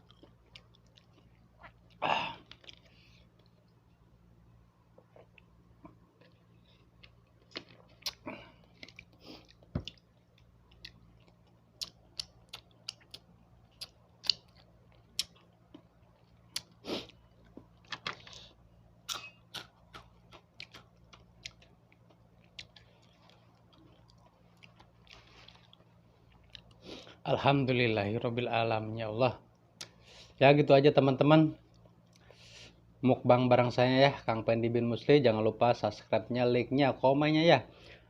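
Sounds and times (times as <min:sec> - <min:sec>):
person chewing and eating: 0:00.0 - 0:03.8, 0:04.9 - 0:27.2.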